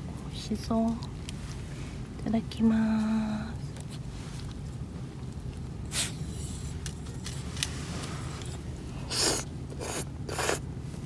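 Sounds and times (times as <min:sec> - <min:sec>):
person slurping noodles: 0:09.1 - 0:10.6.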